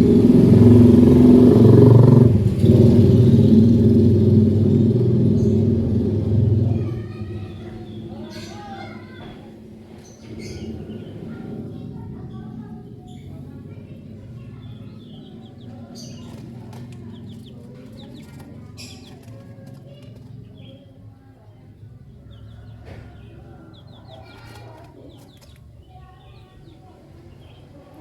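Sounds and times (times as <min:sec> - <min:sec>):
steady low hum: 0:00.0 - 0:08.7, 0:09.5 - 0:20.9
wing flutters: 0:00.0 - 0:21.0, 0:23.8 - 0:26.0
lovebirds chirping: 0:01.1 - 0:28.0.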